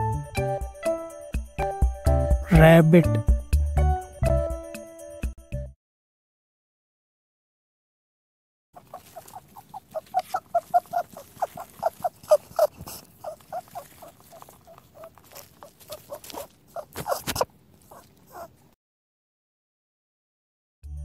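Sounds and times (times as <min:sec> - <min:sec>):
rabbit pulsing sounds: 0:08.8 - 0:18.6.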